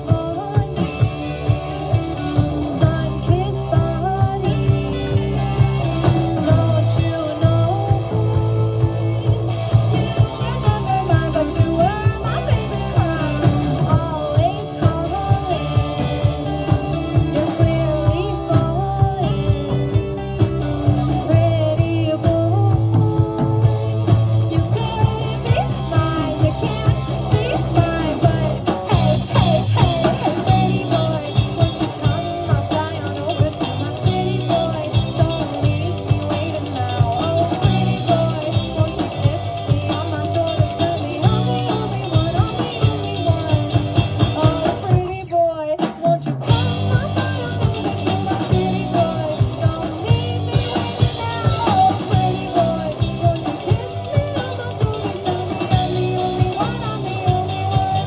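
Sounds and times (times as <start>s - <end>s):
person singing: 0.0s - 58.0s
rock band playing: 0.0s - 58.0s
steady drum beat: 0.0s - 58.0s.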